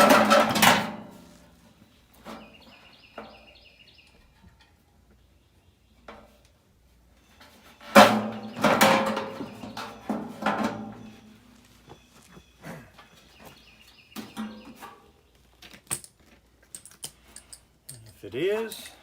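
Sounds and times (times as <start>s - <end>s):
clattering metal knocks: 0.0s - 1.2s, 7.9s - 11.3s.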